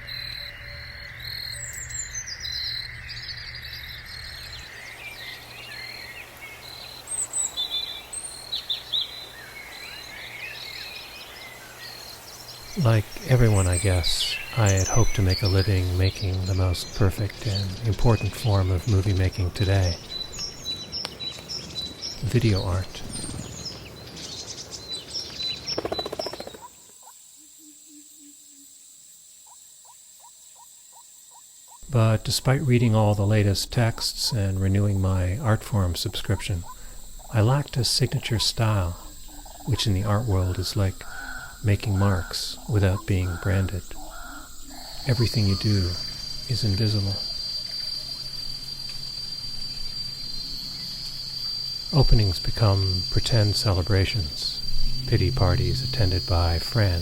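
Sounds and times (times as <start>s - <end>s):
insect drone: 0.0s - 57.0s
songbirds chirping and trilling: 0.0s - 57.0s
faint low pulsing call: 31.8s - 48.2s, 52.1s - 57.0s
low rumble: 54.5s - 57.0s.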